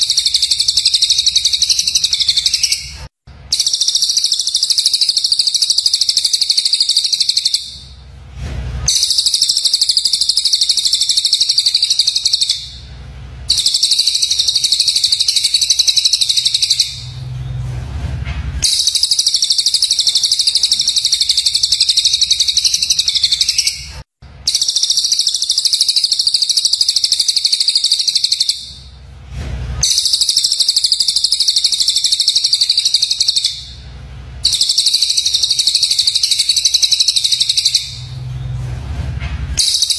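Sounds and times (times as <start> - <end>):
songbird rapid high chirping: 0.0 - 7.8, 8.9 - 12.8, 13.5 - 17.1, 18.6 - 23.9.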